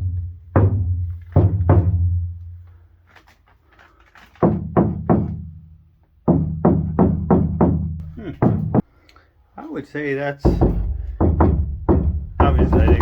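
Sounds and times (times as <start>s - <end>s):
knocking on sheet metal: 10.4s - 13.0s.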